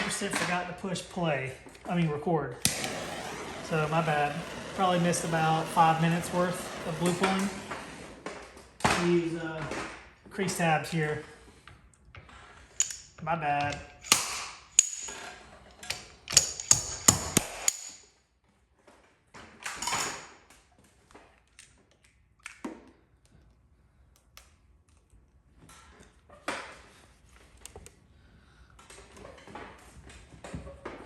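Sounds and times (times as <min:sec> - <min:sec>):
short rushing burst: 0:02.7 - 0:08.6
dent repair tool snaps and clicks: 0:12.8 - 0:13.1, 0:14.0 - 0:15.1, 0:15.8 - 0:18.0.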